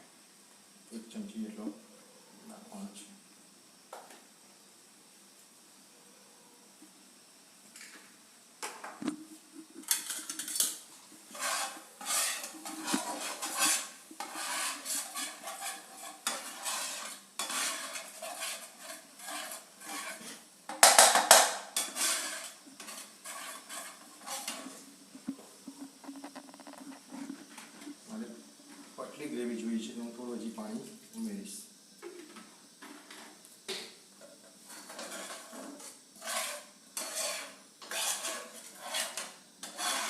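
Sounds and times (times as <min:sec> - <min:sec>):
spoon scraping a pan: 0:09.6 - 0:24.9, 0:25.7 - 0:28.0, 0:34.7 - 0:40.0.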